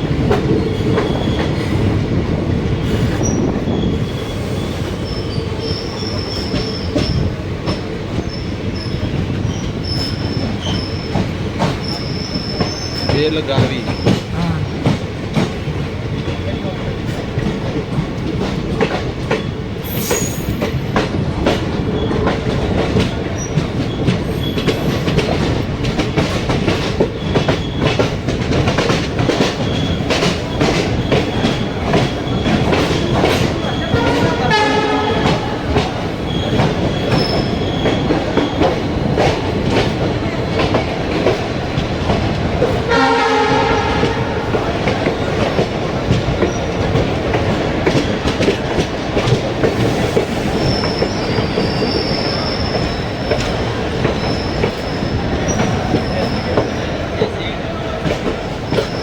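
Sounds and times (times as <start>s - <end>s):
train wheels clattering on rails: 0.0s - 59.0s
train horn: 33.7s - 35.8s, 42.9s - 44.7s.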